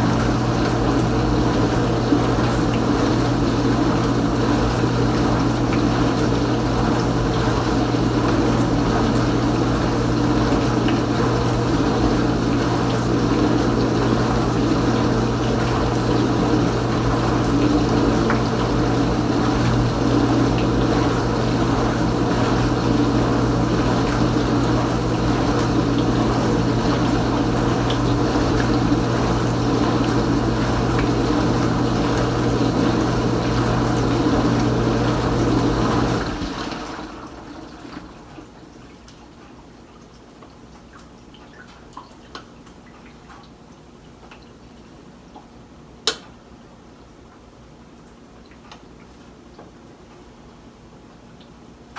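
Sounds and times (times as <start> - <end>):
dishwasher pump motor humming: 0.0 - 39.6
water moving inside dishwasher: 0.0 - 43.6.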